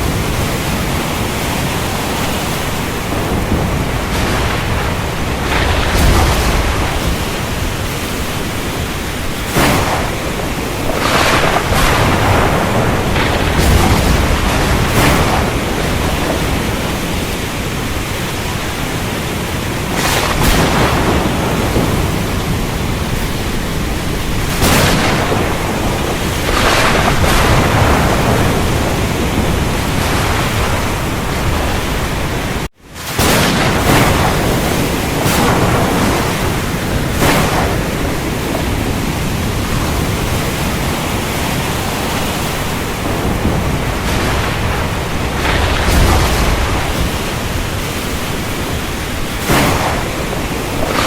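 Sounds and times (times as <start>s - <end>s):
heavy rain: 0.0s - 51.0s
wind: 0.0s - 51.0s.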